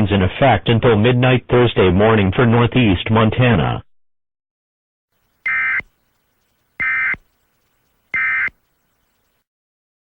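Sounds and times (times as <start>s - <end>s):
buzzy digital data tones: 5.2s - 9.4s.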